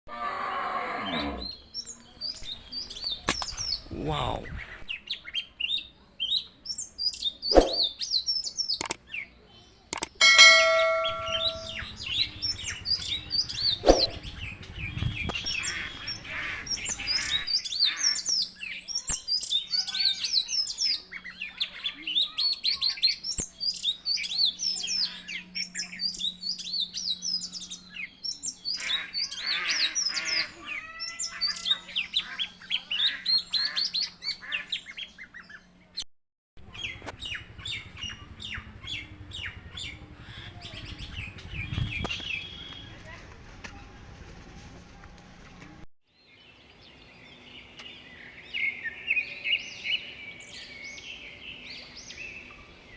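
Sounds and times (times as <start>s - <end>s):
small birds chirping: 1.1s - 36.0s, 36.6s - 44.0s
sharp clicks: 8.8s - 9.0s, 9.9s - 10.2s
brief ringing tone: 10.2s - 12.4s.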